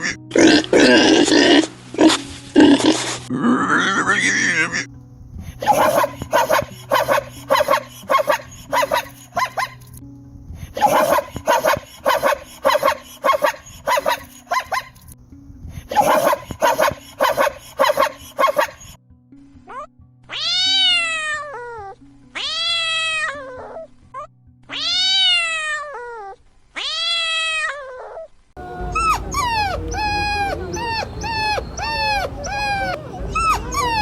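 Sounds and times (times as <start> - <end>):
dog barking: 5.6 - 9.7, 10.8 - 15.0, 15.9 - 18.9, 28.9 - 34.0
short high yelping calls: 5.6 - 9.9, 10.8 - 15.1, 15.9 - 19.0, 28.8 - 34.0
cat meowing: 20.3 - 23.9, 24.7 - 34.0.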